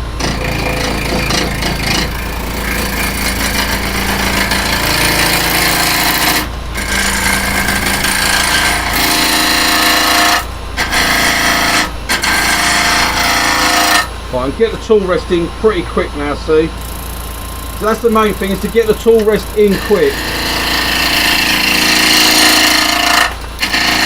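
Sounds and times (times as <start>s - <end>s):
gouge cutting wood: 0.0s - 14.2s, 17.8s - 24.0s
lathe humming: 0.0s - 24.0s.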